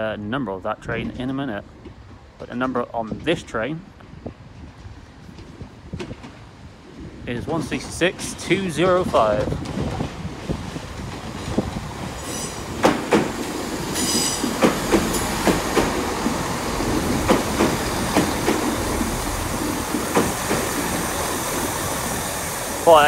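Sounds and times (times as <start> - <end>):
train wheels clacking over rail joints: 7.4 - 21.8.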